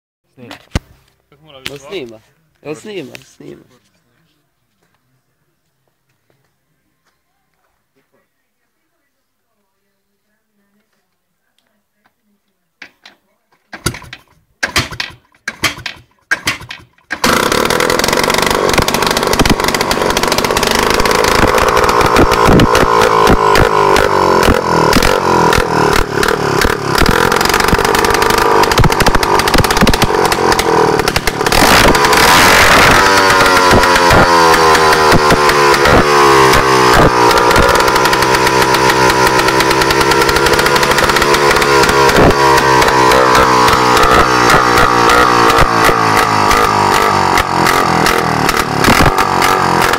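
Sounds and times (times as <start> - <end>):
two-stroke engine running: 13.8 - 49.9.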